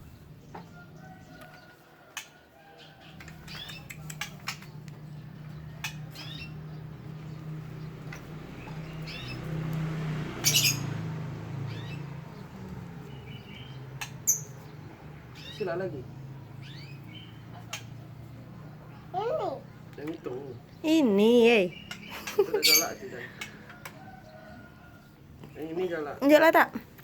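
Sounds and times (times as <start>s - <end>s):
bird giving harsh calls and chirps: 5.8s - 6.9s, 10.4s - 11.0s, 13.0s - 18.3s, 20.5s - 23.6s.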